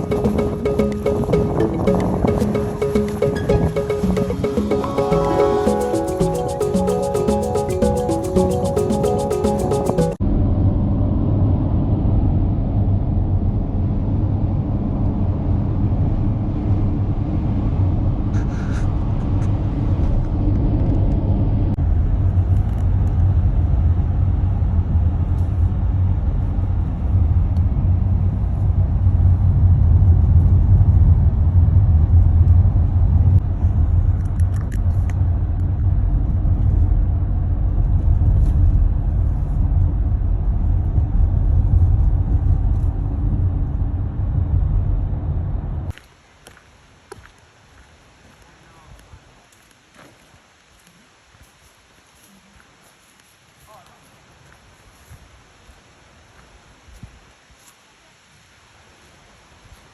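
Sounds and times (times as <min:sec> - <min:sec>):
low road rumble inside car: 0:10.2 - 0:45.9.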